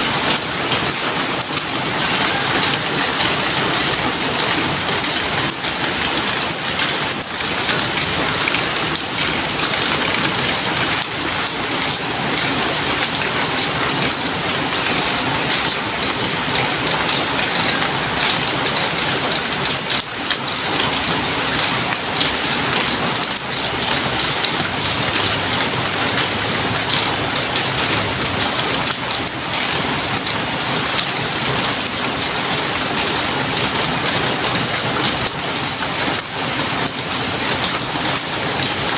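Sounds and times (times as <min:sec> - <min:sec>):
rain pattering: 0:00.0 - 0:38.9.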